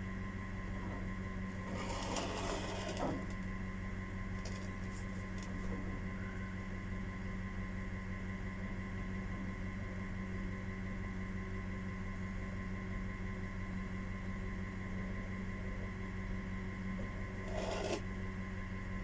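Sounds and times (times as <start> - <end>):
low electrical hum: 0.0 - 19.0
scraping handling noise: 1.6 - 3.5, 17.0 - 18.0.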